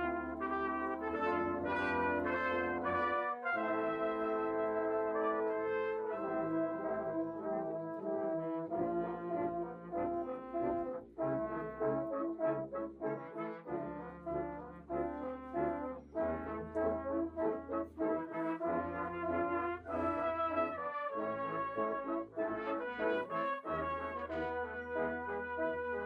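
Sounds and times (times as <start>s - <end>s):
brass band playing: 0.0s - 26.0s.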